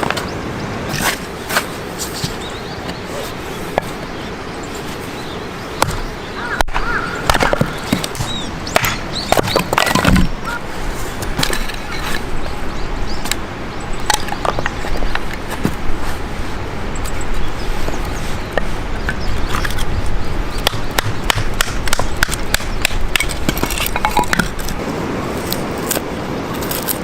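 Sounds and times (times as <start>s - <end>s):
steady background hiss: 0.0s - 27.0s
clicks and crackles: 25.4s - 27.0s.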